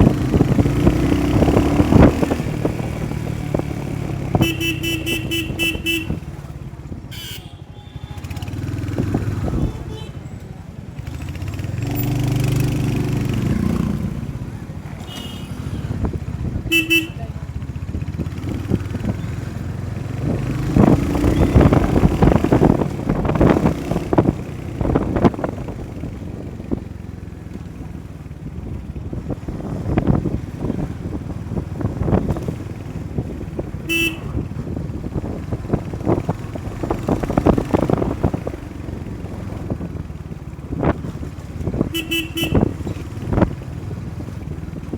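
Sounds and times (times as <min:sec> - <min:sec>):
wind buffeting microphone: 0:00.0 - 0:07.2, 0:08.1 - 0:15.0, 0:15.6 - 0:44.9
motorcycle engine rumble: 0:00.0 - 0:44.9
short horn beeps: 0:04.4 - 0:06.2, 0:07.1 - 0:08.5, 0:33.9 - 0:34.4, 0:41.9 - 0:42.7.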